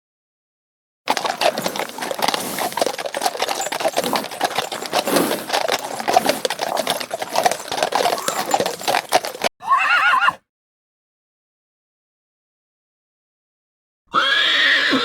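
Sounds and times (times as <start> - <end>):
hooves clattering on hard ground: 1.1 - 9.5.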